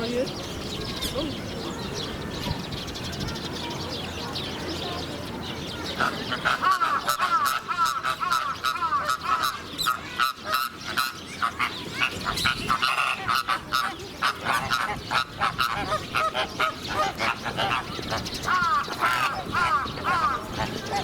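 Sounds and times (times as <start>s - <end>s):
flamingos honking and gabbling: 5.7s - 21.0s.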